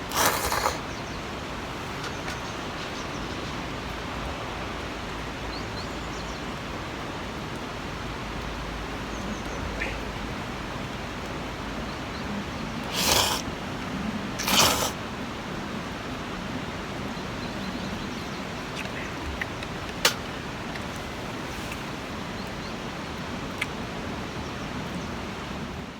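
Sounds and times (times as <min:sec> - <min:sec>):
short noisy bursts: 0:00.0 - 0:00.8, 0:12.9 - 0:13.5, 0:14.4 - 0:15.0.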